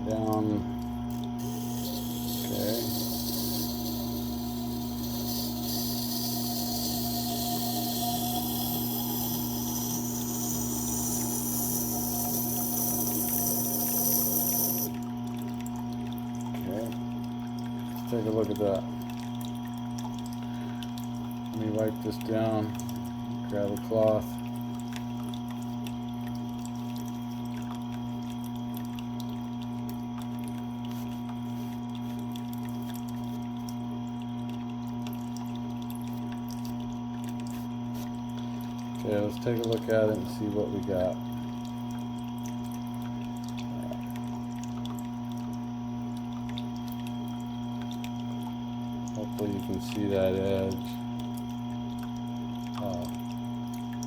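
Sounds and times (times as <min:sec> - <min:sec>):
grinder motor hum: 0:00.0 - 0:15.0
blade hissing on wet stone: 0:01.4 - 0:14.9.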